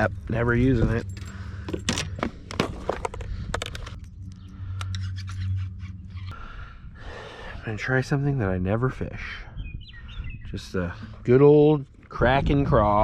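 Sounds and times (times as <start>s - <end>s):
fishing tackle rummaging clicks: 0.8s - 6.0s.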